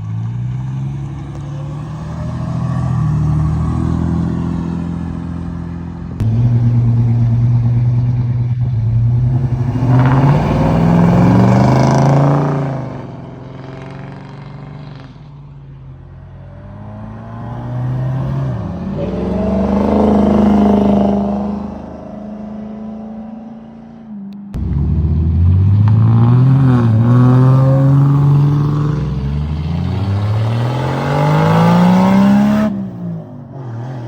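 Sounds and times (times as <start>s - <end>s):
car engines driving off: 0.0s - 34.0s
car engine revving: 6.2s - 15.1s, 16.4s - 22.5s, 24.6s - 34.0s.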